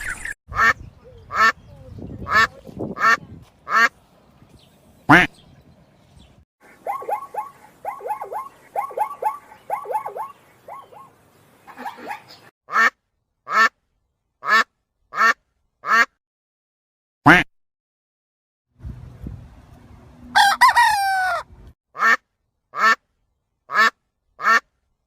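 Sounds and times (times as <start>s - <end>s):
ducks quacking: 0.0s - 4.0s, 5.1s - 5.4s, 14.4s - 16.1s, 23.7s - 24.7s.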